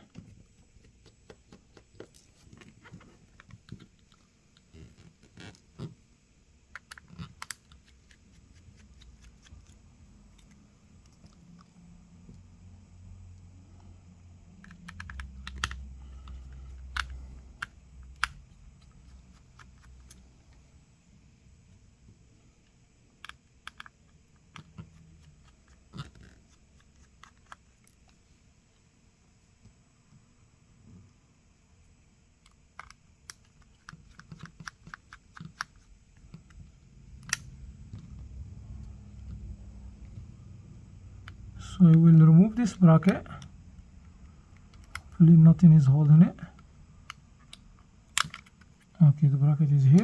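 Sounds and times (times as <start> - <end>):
small tools clicking on phone parts: 6.7 - 11.7, 14.5 - 20.3, 23.2 - 28.2, 32.5 - 36.6, 43.0 - 45.2, 46.6 - 49.0.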